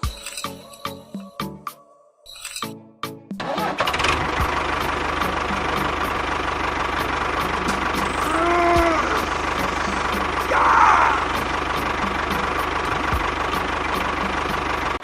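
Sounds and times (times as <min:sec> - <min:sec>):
small engine running: 0:03.4 - 0:15.0.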